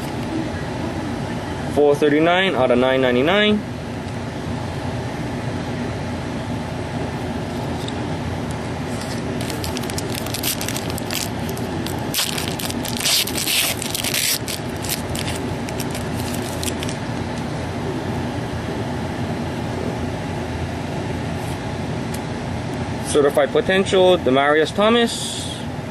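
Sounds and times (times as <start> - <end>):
trading cards and packaging rustling: 0.0 - 0.3, 8.9 - 17.4
steady background hum: 0.0 - 25.9.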